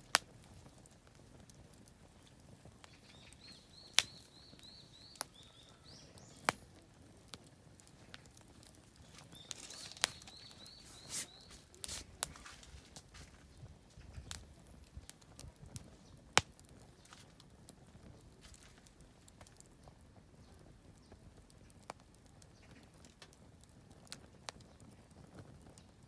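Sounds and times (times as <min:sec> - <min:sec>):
campfire wood popping: 0:00.0 - 0:26.0.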